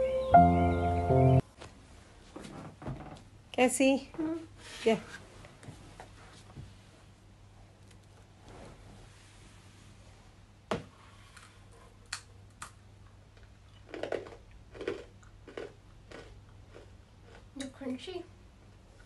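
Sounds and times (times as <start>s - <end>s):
crunchy snack being chewed: 13.4s - 17.5s.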